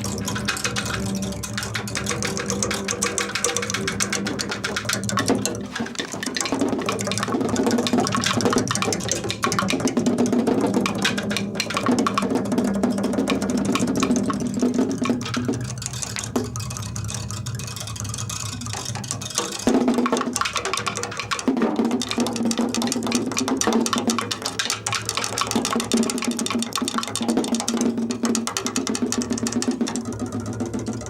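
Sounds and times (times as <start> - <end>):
low sustained tones: 0.0 - 6.1.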